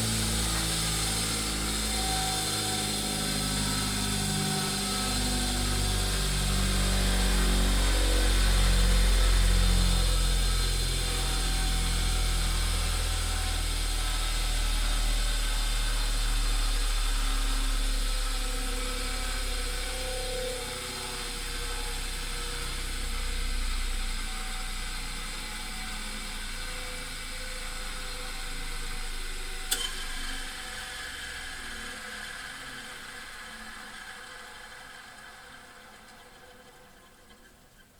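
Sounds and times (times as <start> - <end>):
grinding wheel motor winding down: 0.0 - 37.4.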